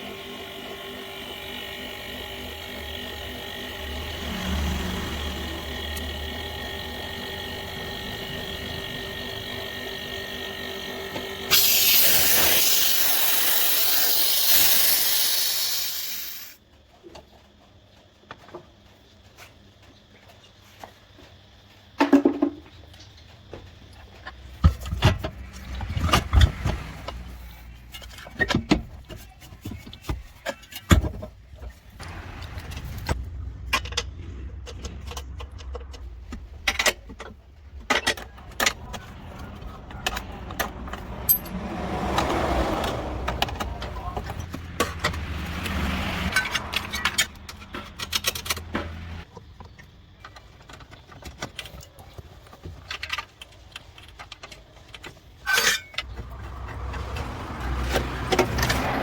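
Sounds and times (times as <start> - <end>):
loud steady hiss: 11.5 - 16.6.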